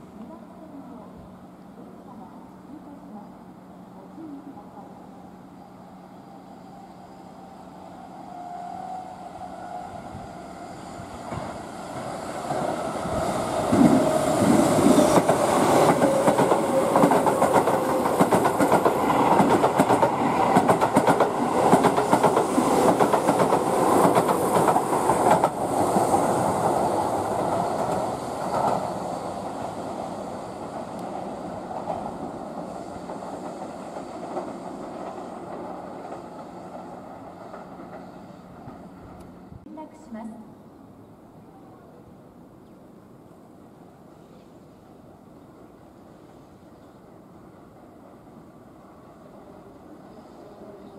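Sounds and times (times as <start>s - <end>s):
train wheels clickety-clack: 11.2s - 39.3s.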